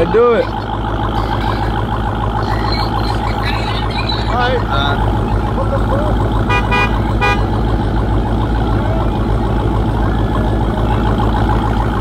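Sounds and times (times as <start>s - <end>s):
car engine running: 0.0s - 12.0s
short horn-like beeps: 6.5s - 7.5s.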